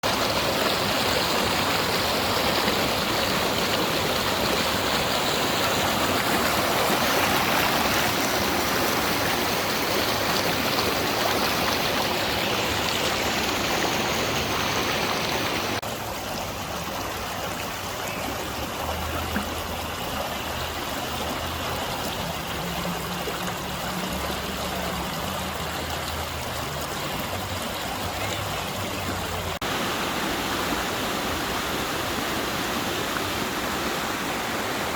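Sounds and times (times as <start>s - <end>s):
creek water rushing over rocks: 0.0s - 34.9s.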